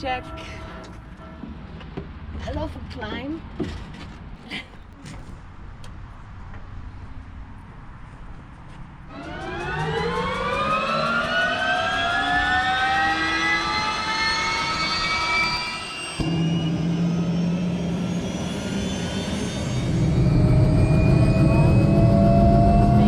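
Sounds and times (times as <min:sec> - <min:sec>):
turbine engine whine: 0:09.0 - 0:23.0
low hum: 0:09.1 - 0:23.0.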